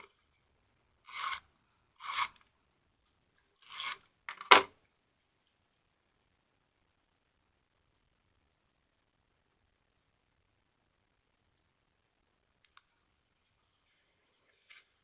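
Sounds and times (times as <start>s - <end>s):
tape runner strokes on cardstock: 1.1s - 1.4s.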